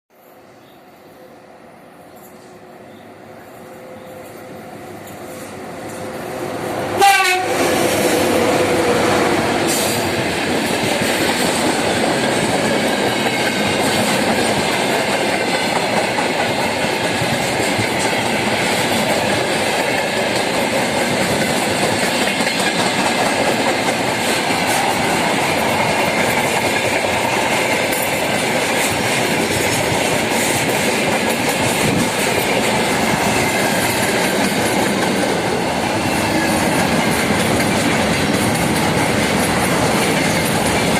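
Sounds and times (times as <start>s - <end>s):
electric locomotive passing: 0.1s - 40.9s
wheels clicking over rail joints: 9.7s - 40.9s.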